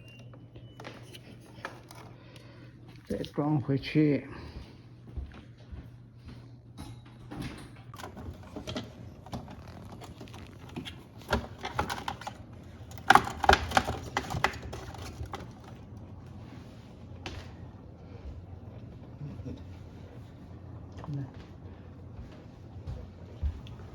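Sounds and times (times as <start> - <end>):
low steady hum: 0.0 - 23.9
plastic parts clicking and rattling: 8.0 - 15.8.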